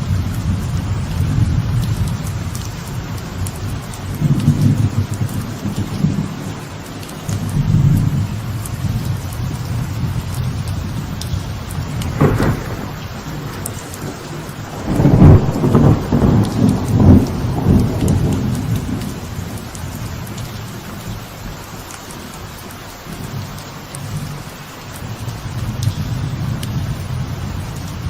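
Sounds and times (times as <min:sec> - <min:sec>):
light rain falling: 0:00.0 - 0:28.0
thunder: 0:11.4 - 0:20.1.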